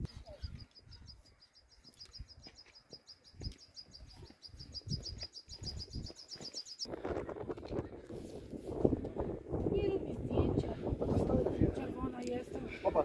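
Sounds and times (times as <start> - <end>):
wind rumble on microphone: 4.0 - 6.2, 6.9 - 13.0.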